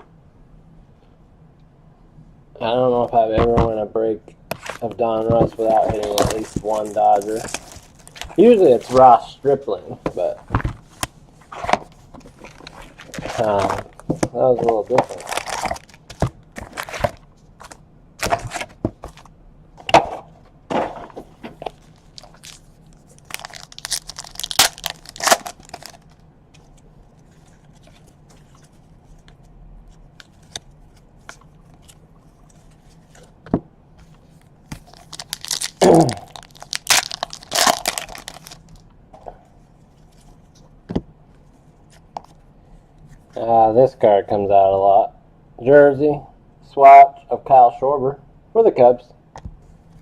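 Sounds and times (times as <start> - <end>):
foil wrappers crinkling and tearing: 5.6 - 9.2, 12.4 - 17.2, 21.6 - 26.2, 34.8 - 38.8.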